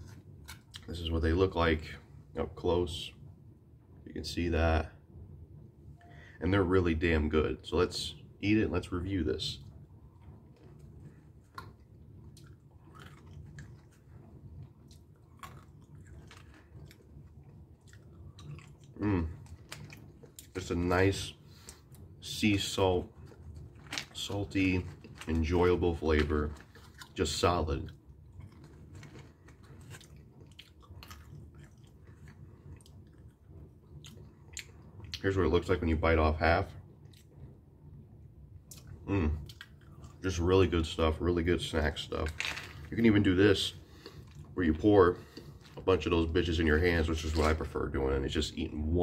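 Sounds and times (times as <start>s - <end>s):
person chewing peanuts: 0.0s - 0.9s, 10.2s - 20.7s, 26.0s - 27.2s, 27.8s - 35.2s, 43.9s - 44.6s.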